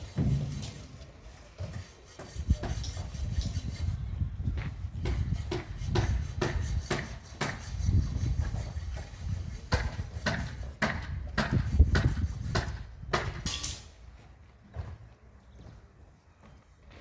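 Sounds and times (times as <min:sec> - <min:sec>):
hand tools knocking and scraping: 0:00.0 - 0:04.0, 0:05.0 - 0:14.0.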